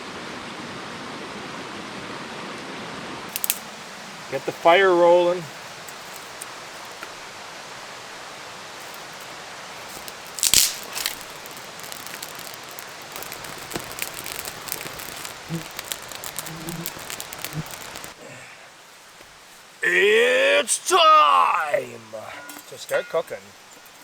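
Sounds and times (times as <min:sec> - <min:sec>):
campfire crackling and popping: 0:03.3 - 0:21.7
steady hiss: 0:03.3 - 0:24.0
brief loud rustle: 0:09.8 - 0:18.2.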